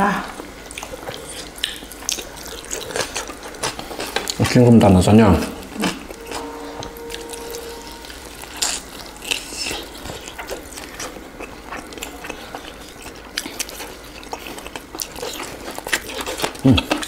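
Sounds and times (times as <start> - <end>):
person chewing crunchy chicken: 0.4 - 4.6, 8.0 - 17.0.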